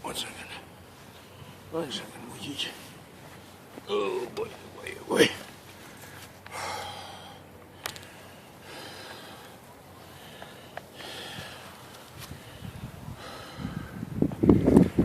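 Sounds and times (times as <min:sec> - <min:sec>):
heavy breathing: 0:05.7 - 0:14.1.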